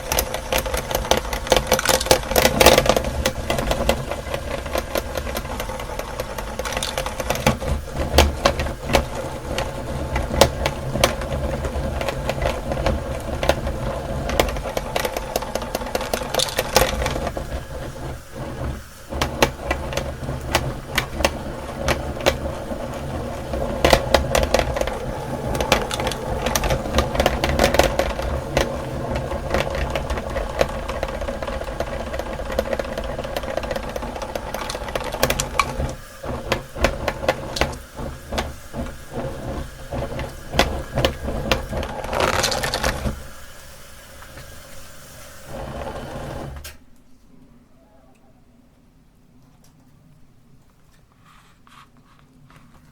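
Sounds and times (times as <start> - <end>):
meat grinder motor hum: 0.0 - 46.7
hard candy cracking: 39.9 - 43.2.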